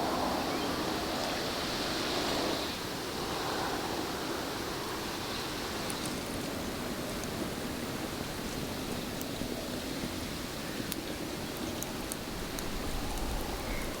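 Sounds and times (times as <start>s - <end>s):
faint ticks: 10.8s - 14.0s.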